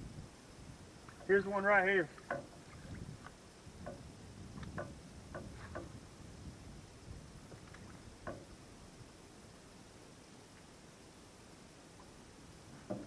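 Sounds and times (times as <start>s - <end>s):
small clicks and light knocks: 2.1s - 4.0s, 4.6s - 6.0s, 7.5s - 8.6s, 12.8s - 13.0s.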